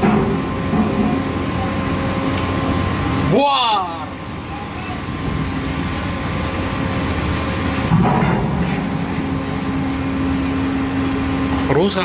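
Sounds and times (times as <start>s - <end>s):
ship engine rumble and drone: 0.0s - 12.0s.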